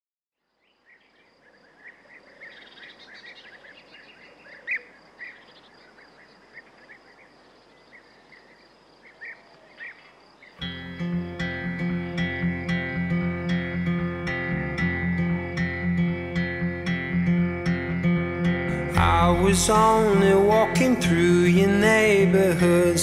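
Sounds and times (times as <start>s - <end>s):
birds chirping: 0.5s - 23.0s.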